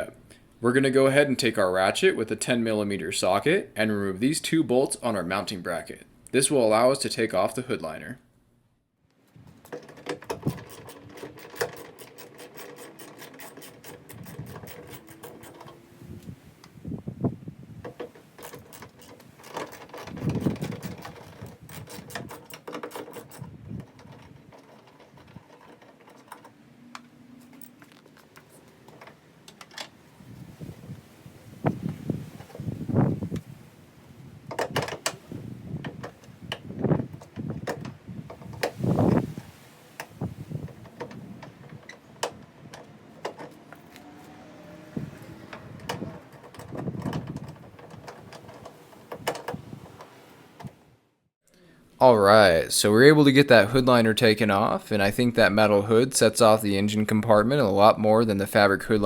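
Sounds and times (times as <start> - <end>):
sharp clicks and knocks: 9.2 - 16.8, 17.8 - 30.0, 34.4 - 38.9, 39.9 - 44.1, 45.2 - 50.8
fabric scraping and rustling: 9.4 - 29.3, 30.0 - 34.4, 38.1 - 50.9
ratchet clicking rapidly: 10.4 - 15.8.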